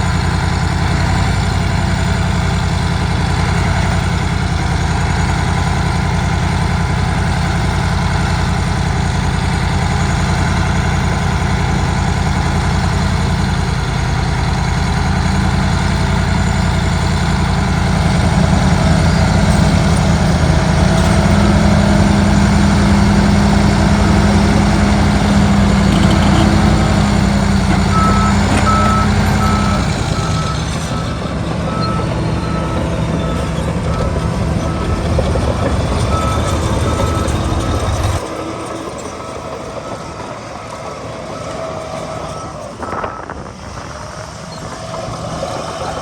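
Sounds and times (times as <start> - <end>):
diesel machinery engine: 0.0 - 46.0
reversing alarm beeping: 15.3 - 43.9.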